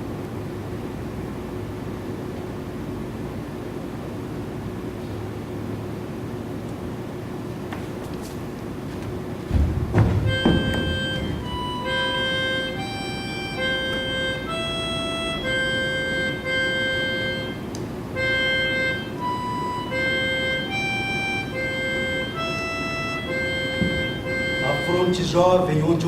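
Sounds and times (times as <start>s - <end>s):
low background hum: 0.0s - 26.0s
slow instrumental melody: 10.0s - 25.5s.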